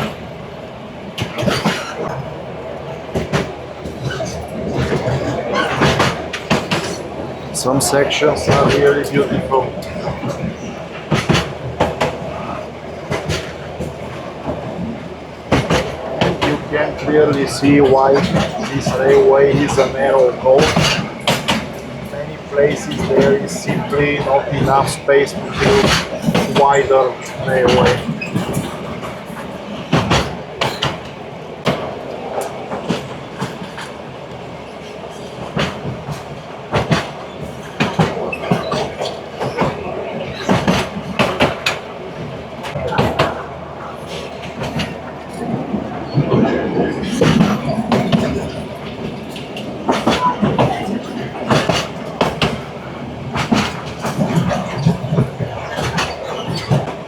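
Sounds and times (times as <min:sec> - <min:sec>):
train carriage rumbling on track: 0:00.0 - 0:57.0
wheels clacking and knocking: 0:01.2 - 0:02.3, 0:03.1 - 0:57.0
sharp clacks and knocks: 0:15.5 - 0:21.9, 0:47.0 - 0:52.7, 0:53.3 - 0:57.0.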